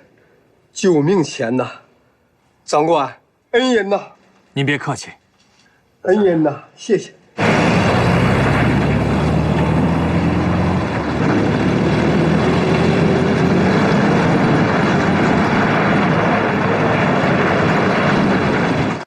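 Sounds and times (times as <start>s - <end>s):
vehicle engine and travel noise: 7.3s - 19.0s.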